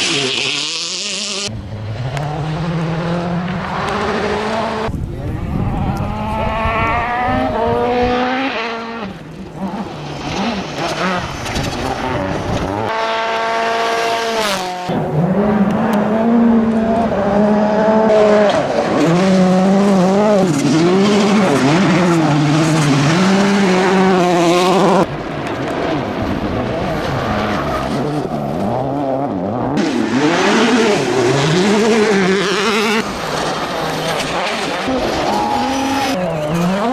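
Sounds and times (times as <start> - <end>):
rally car engines revving hard: 0.0 - 36.9.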